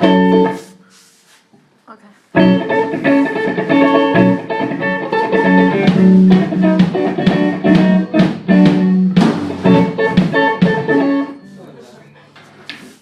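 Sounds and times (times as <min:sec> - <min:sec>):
guitar over drum beat: 0:00.0 - 0:00.8, 0:02.3 - 0:11.6.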